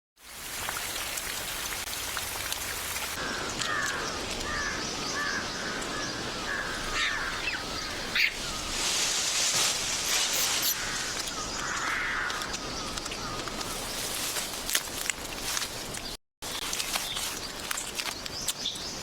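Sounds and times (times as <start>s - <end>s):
rain hiss: 0.2s - 11.2s.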